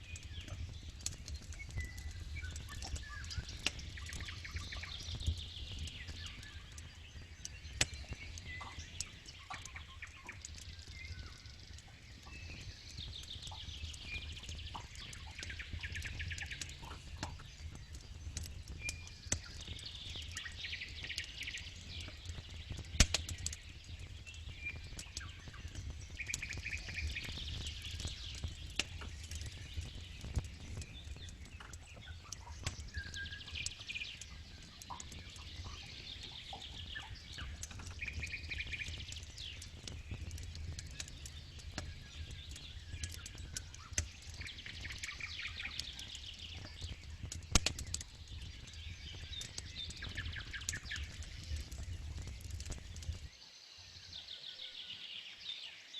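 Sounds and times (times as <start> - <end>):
campfire crackling and popping: 0.0 - 54.2
birds chirping and trilling: 0.1 - 22.9, 23.5 - 55.9.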